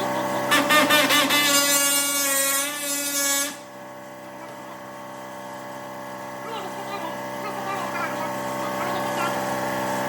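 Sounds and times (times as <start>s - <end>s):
power tool motor whining: 0.0s - 10.0s.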